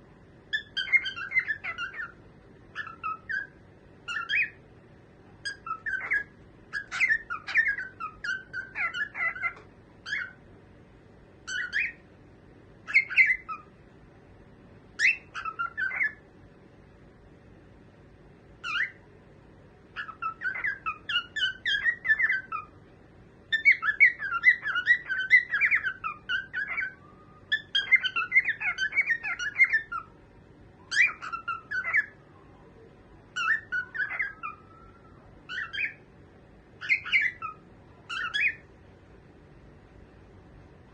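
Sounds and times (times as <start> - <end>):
cockatiel chirping: 0.5 - 4.6, 5.4 - 10.4, 11.4 - 12.0, 12.8 - 13.7, 15.0 - 16.2, 18.6 - 19.0, 19.9 - 22.8, 23.5 - 30.2, 30.8 - 32.2, 33.3 - 36.0, 36.8 - 38.7.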